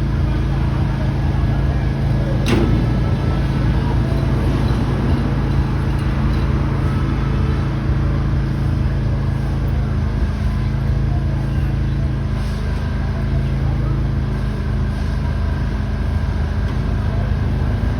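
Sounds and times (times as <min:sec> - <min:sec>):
road and traffic noise: 0:00.0 - 0:17.9
vehicle engine running: 0:00.0 - 0:17.9.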